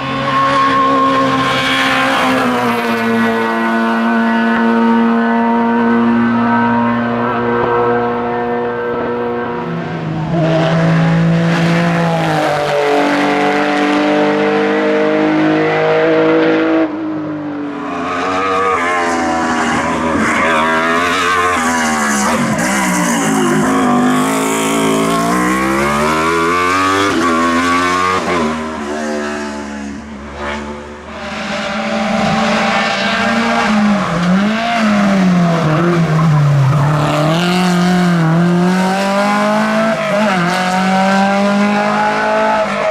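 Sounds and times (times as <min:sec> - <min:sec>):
racing car engines revving: 0:00.0 - 0:42.9.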